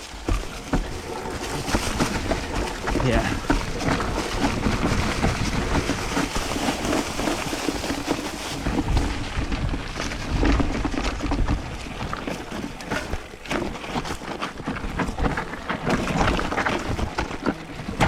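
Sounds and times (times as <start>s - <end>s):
bike rattling over bumps: 0.0s - 18.0s
tyres crunching on dirt: 0.0s - 18.0s
wind rumbling on microphone: 0.0s - 18.0s.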